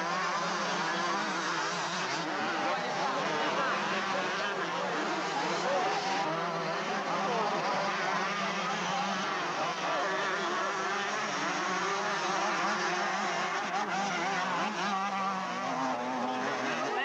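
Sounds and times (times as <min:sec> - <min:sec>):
motocross motorcycle engines racing: 0:00.0 - 0:17.0.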